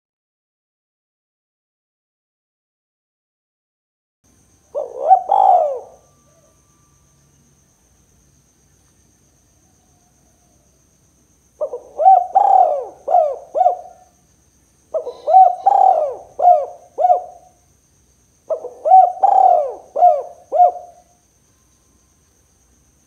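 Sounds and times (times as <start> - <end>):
dove cooing: 4.7 - 6.6, 11.6 - 14.2, 14.9 - 17.6, 18.5 - 21.1.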